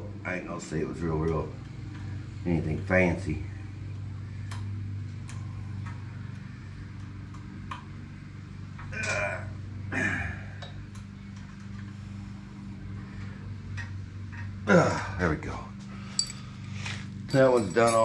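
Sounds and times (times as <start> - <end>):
steady low hum: 0.0 - 18.0
hand tools tapping on metal: 16.1 - 18.0.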